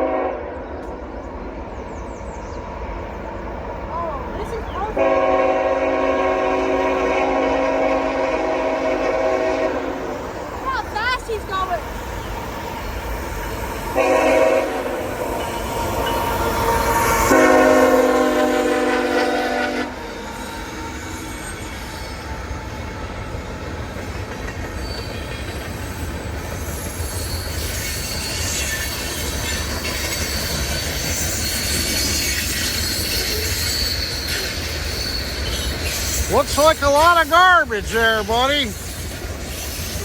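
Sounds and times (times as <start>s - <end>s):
locomotive horn blast: 0.0s - 0.6s, 4.8s - 10.2s, 14.0s - 20.2s
train rumbling past: 0.0s - 40.0s
high wheel squeal: 20.0s - 23.2s, 24.7s - 40.0s.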